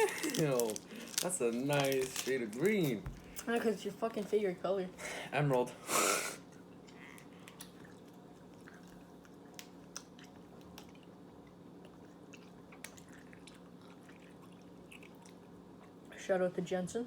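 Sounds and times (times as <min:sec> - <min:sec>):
chewing candy: 0:00.0 - 0:03.5, 0:06.5 - 0:16.2
low steady hum: 0:00.0 - 0:17.0.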